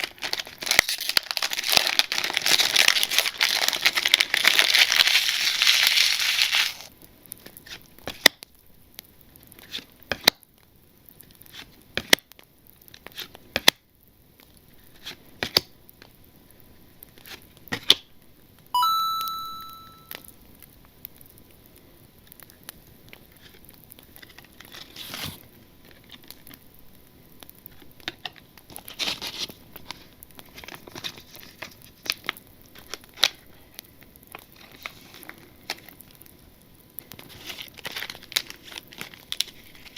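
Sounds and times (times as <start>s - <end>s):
wrapper being torn open: 0.0s - 6.9s, 37.3s - 39.9s
wrapper crinkling: 0.0s - 6.9s, 37.4s - 39.9s
short bright ding: 18.8s - 20.2s.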